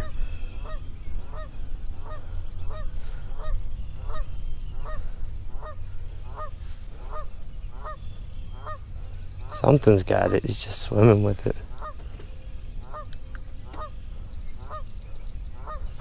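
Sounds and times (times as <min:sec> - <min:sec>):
low rumble: 0:00.0 - 0:10.0
bird short calls: 0:00.0 - 0:10.9, 0:11.5 - 0:16.0.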